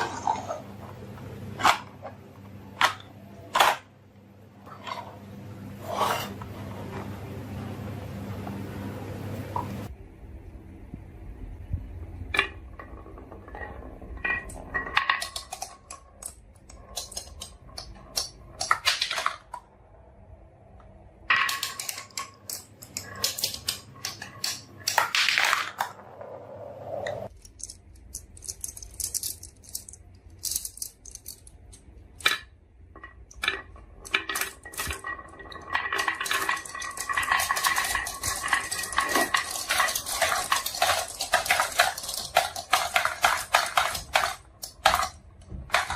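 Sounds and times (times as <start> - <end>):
marbles rolling and clattering: 12.3 - 19.7, 21.2 - 45.9.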